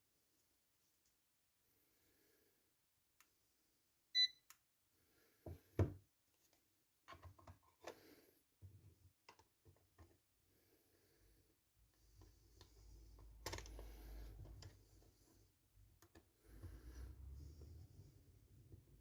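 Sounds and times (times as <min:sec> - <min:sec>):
multimeter beep: 0:04.1 - 0:04.5.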